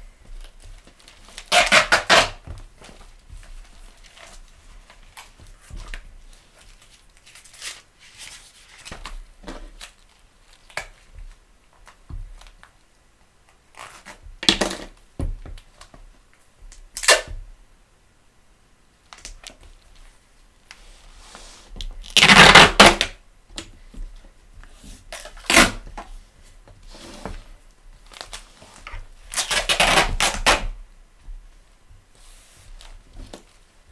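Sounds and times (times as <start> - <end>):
adhesive tape pulled and torn: 1.5 - 2.4, 29.3 - 30.6
book rustling and handling: 2.4 - 12.6.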